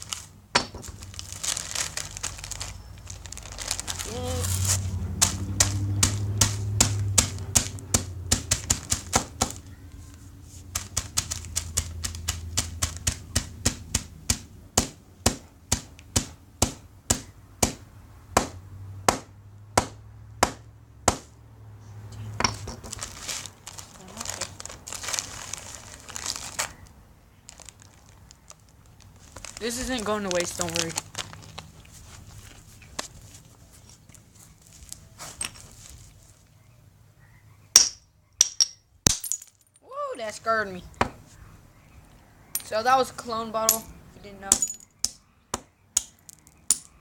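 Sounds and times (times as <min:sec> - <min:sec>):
chip bag crinkling: 0:00.0 - 0:13.1, 0:22.6 - 0:36.5.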